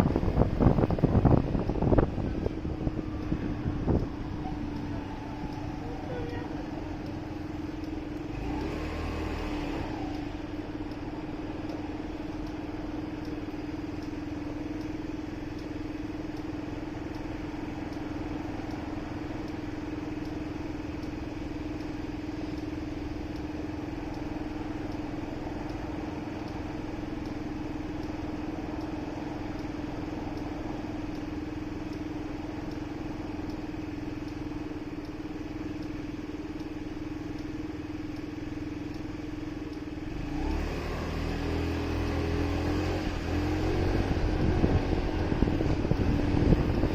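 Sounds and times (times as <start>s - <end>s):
motorcycle engine running: 0.0s - 46.9s
road and traffic noise: 0.0s - 46.9s.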